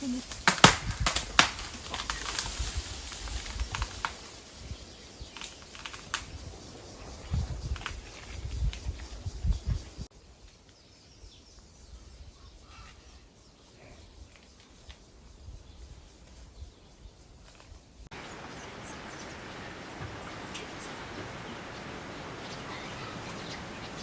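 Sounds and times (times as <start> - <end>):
insects: 0.0 - 18.1
quiet outdoor hiss: 0.0 - 24.0
faint bird chirps: 6.7 - 17.7.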